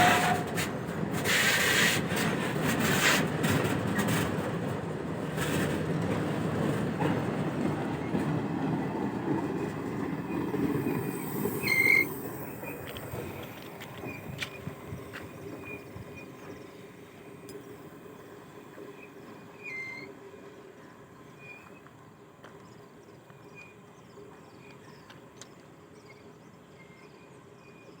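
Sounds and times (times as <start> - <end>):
short high squeaks: 0.0 - 0.7, 10.8 - 13.2, 19.0 - 20.2
goods train rumbling: 0.0 - 27.6.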